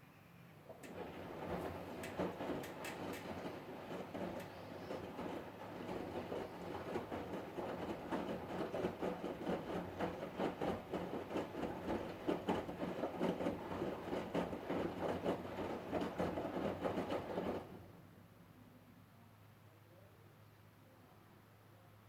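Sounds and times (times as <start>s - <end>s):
washing machine drum hum: 0.6s - 18.0s
rhythmic knocking: 0.9s - 17.7s.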